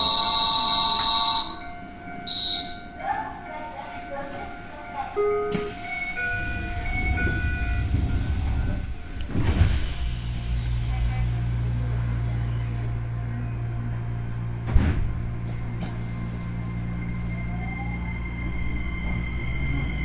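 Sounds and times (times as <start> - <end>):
train equipment low hum: 0.0 - 20.0
train doors thumping shut: 5.4 - 6.1, 7.1 - 10.7, 14.6 - 16.1.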